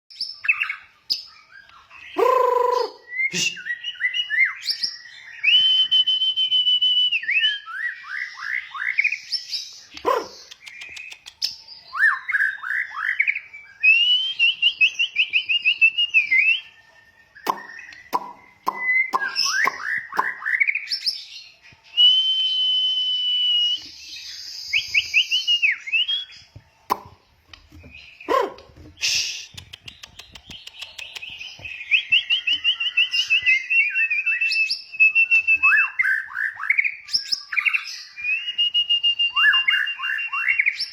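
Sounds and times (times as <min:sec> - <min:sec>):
bird singing whistled phrases: 0:00.1 - 0:27.1, 0:27.7 - 0:40.9
sharp clicks: 0:09.9 - 0:11.5, 0:29.0 - 0:31.6.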